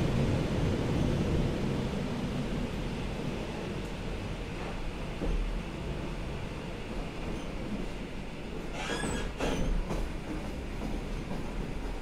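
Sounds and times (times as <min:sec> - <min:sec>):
train wheels rumbling: 0:00.0 - 0:12.0
high wheel squeal: 0:08.7 - 0:09.7.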